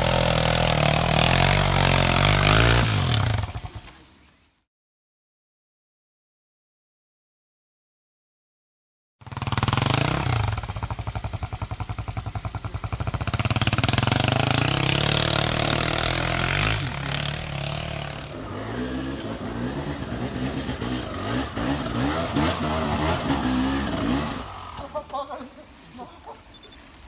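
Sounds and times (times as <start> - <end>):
motorcycle engine revving: 0.0 - 4.4, 9.2 - 25.8.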